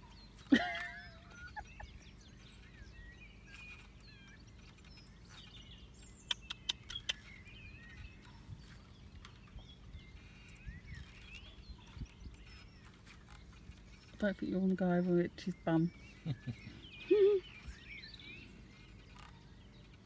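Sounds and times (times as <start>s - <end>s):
faint birdsong chirps: 0.0s - 20.0s
sharp clicks: 3.5s - 8.4s.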